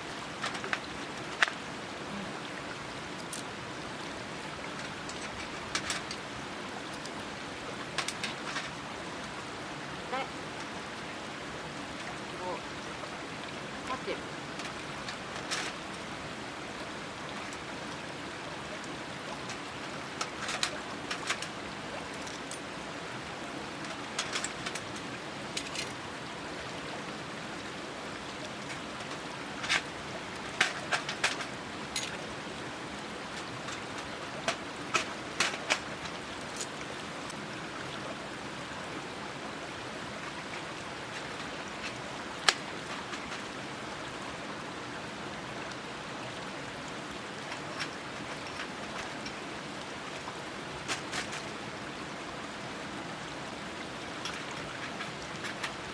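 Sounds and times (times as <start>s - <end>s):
running water rushing: 0.0s - 55.9s
metal clicks and clinks: 25.6s - 26.0s, 30.5s - 32.2s.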